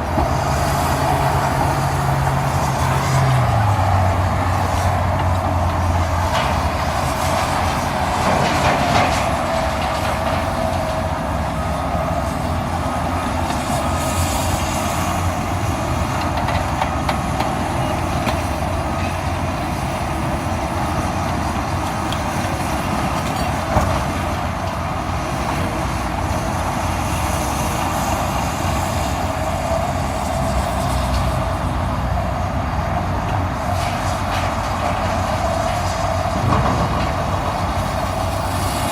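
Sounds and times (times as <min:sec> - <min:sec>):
diesel engines running: 0:00.0 - 0:38.9.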